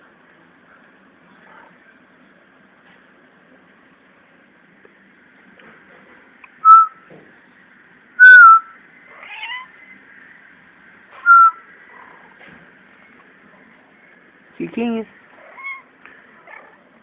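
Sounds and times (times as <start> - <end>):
cat squeaking: 9.2 - 9.7, 15.4 - 15.9.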